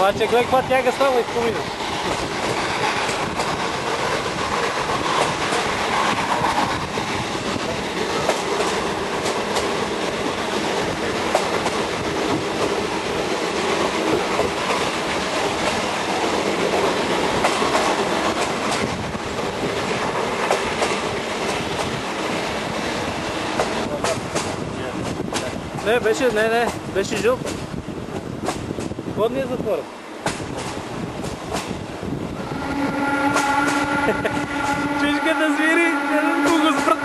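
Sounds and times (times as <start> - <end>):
steam train rolling: 0.0 - 37.0.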